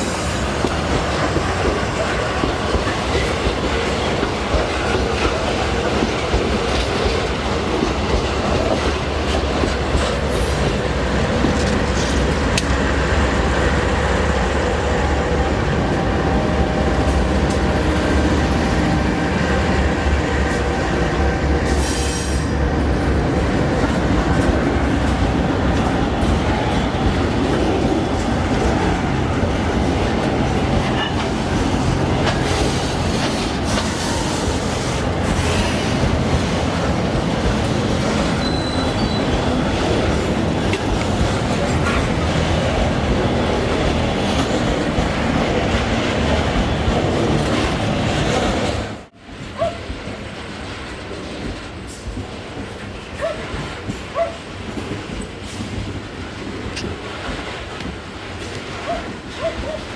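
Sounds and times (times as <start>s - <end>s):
freight train rolling past: 0.0s - 59.9s.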